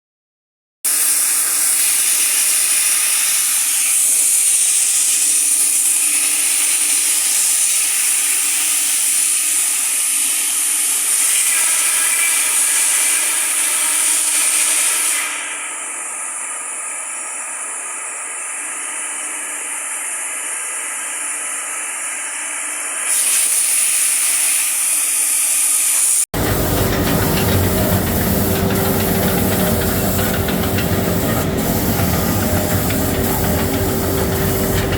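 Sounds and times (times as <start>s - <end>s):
wood sanding machine hissing: 23.2s - 34.9s.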